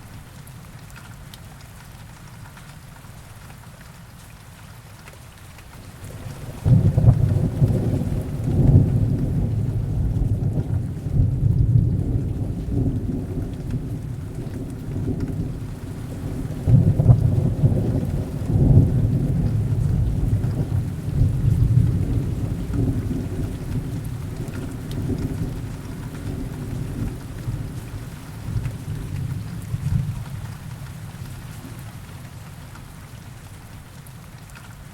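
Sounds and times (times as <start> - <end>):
heavy rain: 0.0 - 34.9
rolling thunder: 6.1 - 30.5.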